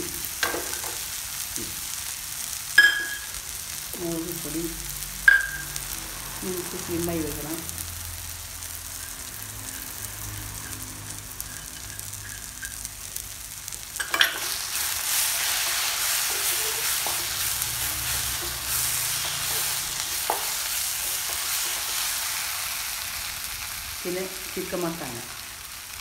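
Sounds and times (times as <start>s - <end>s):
masala sizzling in oil: 0.0s - 26.0s.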